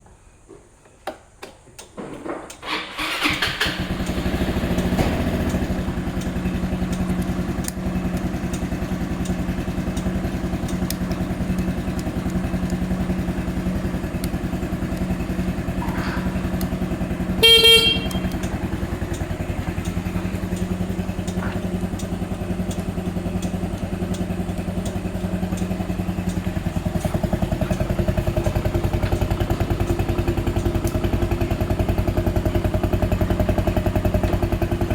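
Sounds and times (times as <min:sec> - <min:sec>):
scooter engine cranking: 0:01.8 - 0:34.9
scooter engine idling: 0:02.6 - 0:34.9
scooter horn: 0:04.1 - 0:09.8, 0:15.2 - 0:21.1.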